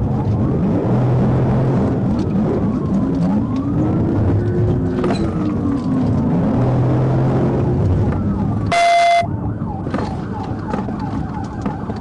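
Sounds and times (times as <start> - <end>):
road and engine noise: 0.0 - 12.0
police siren wailing and yelping: 1.8 - 6.6, 7.4 - 12.0
loud steady blaring tone: 7.4 - 9.5.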